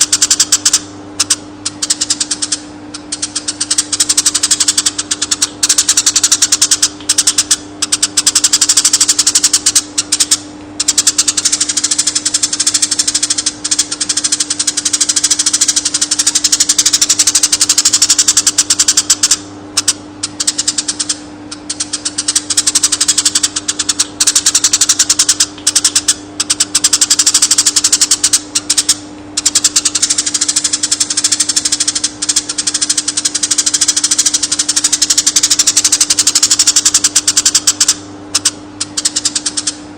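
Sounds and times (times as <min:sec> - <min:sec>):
bird chattering trill: 0:00.0 - 0:39.8
steady low hum: 0:00.0 - 0:39.9.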